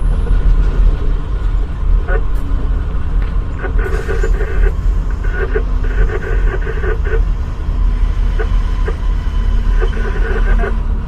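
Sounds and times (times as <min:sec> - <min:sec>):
diesel train low rumble: 0:00.0 - 0:11.0
higher-pitched noise: 0:08.3 - 0:10.8.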